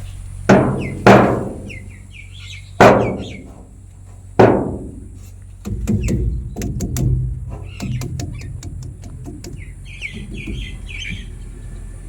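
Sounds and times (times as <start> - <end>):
faint bird chirps: 0.0 - 1.0, 1.6 - 3.5, 7.6 - 8.7, 9.4 - 12.0
low rumble: 0.0 - 12.0
loud ringing knocks: 0.5 - 2.0, 2.8 - 3.8, 4.4 - 11.9
rapid clatter of knocks: 4.4 - 11.5.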